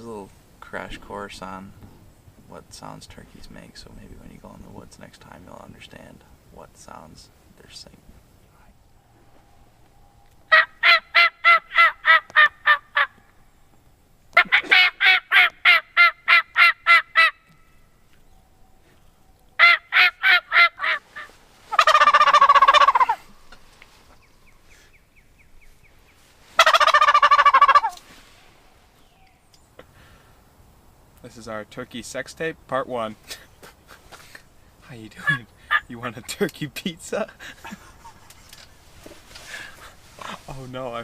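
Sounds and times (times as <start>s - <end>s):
turkey gobbling: 10.5s - 13.2s, 14.4s - 17.6s, 19.6s - 23.7s, 26.6s - 28.0s, 35.2s - 36.2s
turkey yelping: 10.5s - 13.2s, 14.3s - 17.7s, 19.6s - 23.6s, 26.6s - 28.0s, 35.2s - 36.2s.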